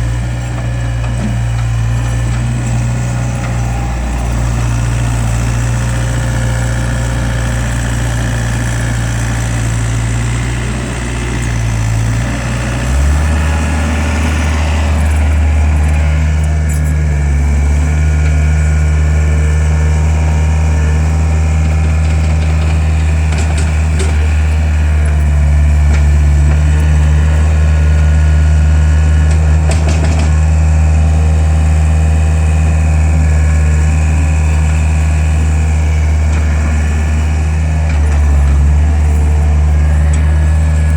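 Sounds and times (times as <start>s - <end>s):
skid steer loader engine running: 0.0s - 40.9s.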